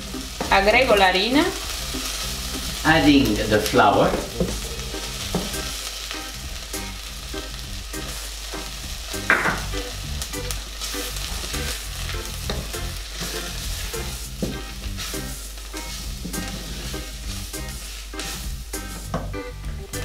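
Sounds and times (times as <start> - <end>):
onions sizzling in butter: 0.0 - 20.0
wooden spoon scraping pot: 15.9 - 17.4.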